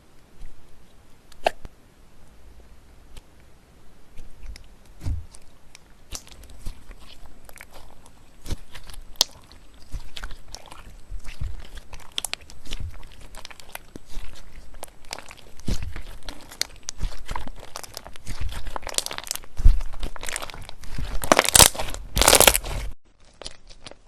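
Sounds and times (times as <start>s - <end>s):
slime crackling and popping: 4.1s - 24.0s
soft low thuds: 4.2s - 5.5s.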